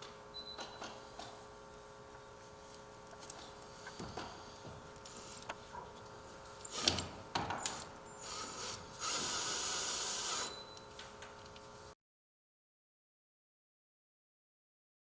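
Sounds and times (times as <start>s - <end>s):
power drill driving screw: 5.0s - 5.6s, 6.6s - 10.8s.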